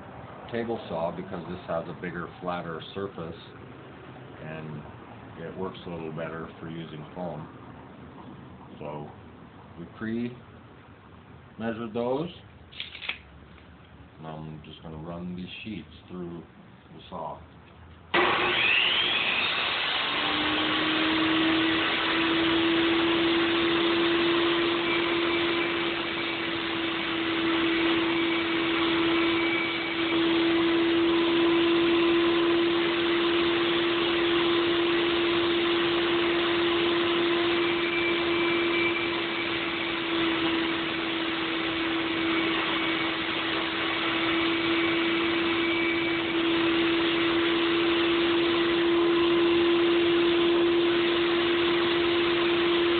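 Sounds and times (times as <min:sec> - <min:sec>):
table saw whine: 0:18.1 - 0:52.9.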